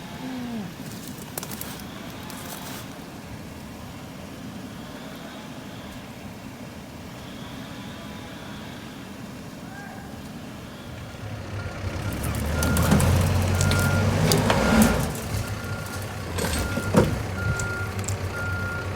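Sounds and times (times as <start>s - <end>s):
vehicle engine idling: 0.0s - 18.9s
sharp clicks and crackles: 12.1s - 18.2s.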